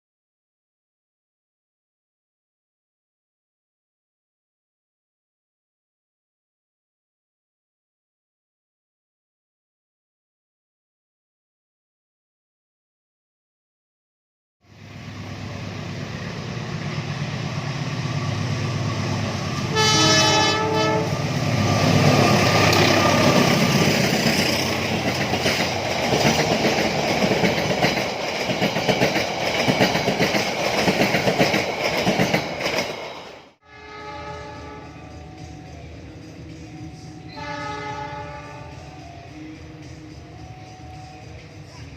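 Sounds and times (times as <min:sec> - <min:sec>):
train rumble: 0:14.7 - 0:41.9
train horn: 0:19.6 - 0:21.4, 0:33.6 - 0:35.5, 0:37.2 - 0:39.3
wheels clattering over rail joints: 0:21.9 - 0:33.3.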